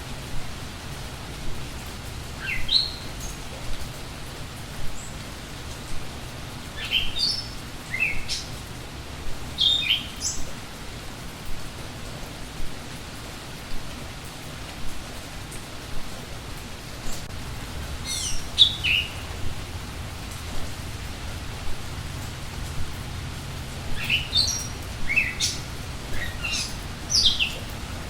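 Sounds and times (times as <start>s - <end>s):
sharp raindrops: 0.0s - 28.0s
steady rain: 0.0s - 28.0s
birds chirping: 2.3s - 4.2s, 6.7s - 8.8s, 9.5s - 10.5s, 17.9s - 19.7s, 20.5s - 28.0s.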